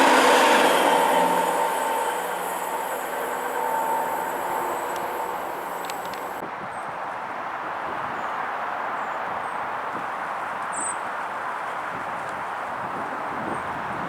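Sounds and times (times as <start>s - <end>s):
train passing: 0.0s - 6.4s.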